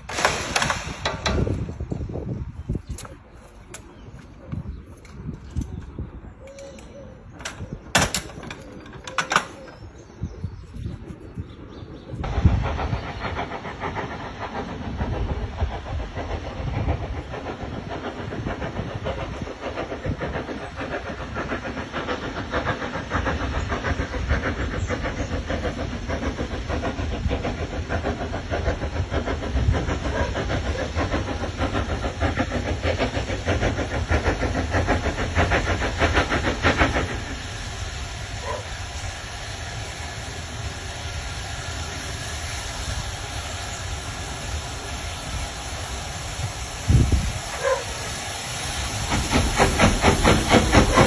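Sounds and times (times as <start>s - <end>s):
train rumbling on track: 0.0s - 51.0s.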